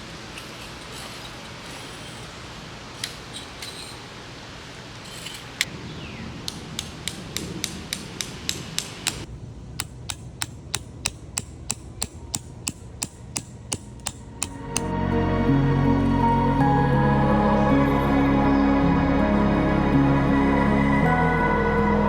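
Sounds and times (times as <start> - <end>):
hammer striking tent stakes: 6.5 - 14.9.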